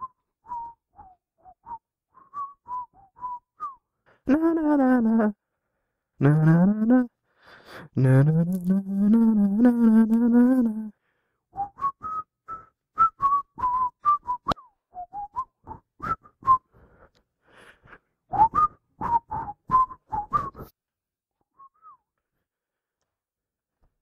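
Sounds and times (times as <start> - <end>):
person whistling a tune: 0.0 - 5.3, 8.0 - 17.1, 17.8 - 20.7, 21.5 - 22.1.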